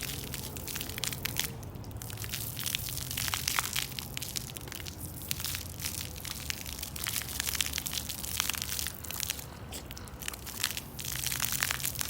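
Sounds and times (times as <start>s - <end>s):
crunching and crackling: 0.0s - 12.0s.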